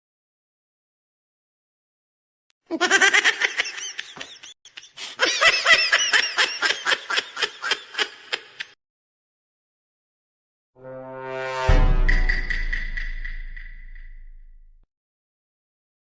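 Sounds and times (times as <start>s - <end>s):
person laughing: 2.7s - 8.8s.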